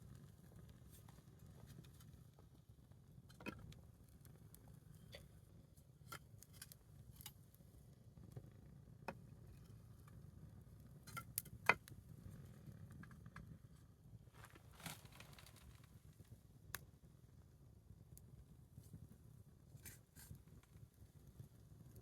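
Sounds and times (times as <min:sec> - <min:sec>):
wood fire crackling: 0:14.3 - 0:17.0
burning wood popping: 0:14.4 - 0:16.1.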